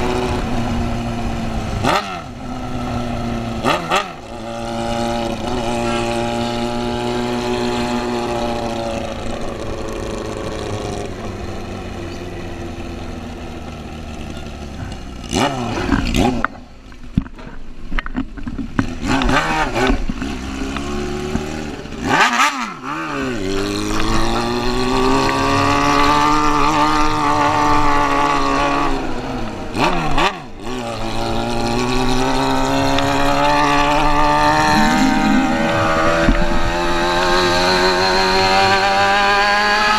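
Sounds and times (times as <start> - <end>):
motorcycle engine revving: 0.0 - 39.9
bursts of rushing noise: 34.0 - 38.0.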